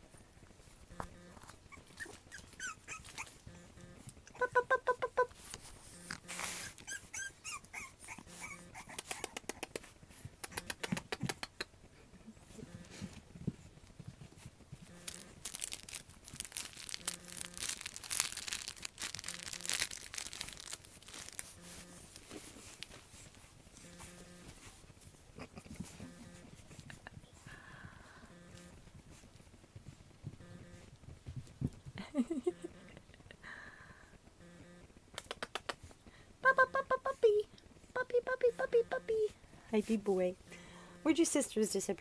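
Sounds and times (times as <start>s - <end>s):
paws clicking and scuffling: 0.4s - 4.3s, 5.3s - 11.7s, 12.4s - 27.4s
puppies squeaking and whining: 1.5s - 3.8s, 6.2s - 9.4s.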